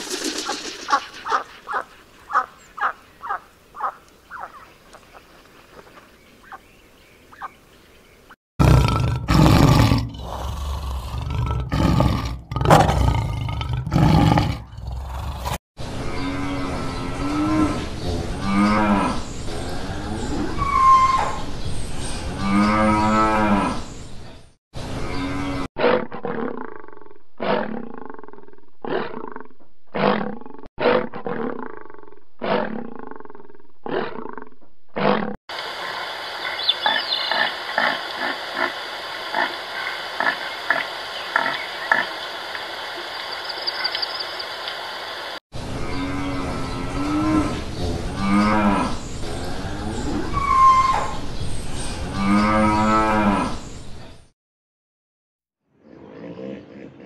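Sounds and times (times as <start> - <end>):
deer calling: 0.9 - 4.7
lion roaring: 8.6 - 15.6, 25.3 - 35.4
high bird chirps: 43.0 - 44.6.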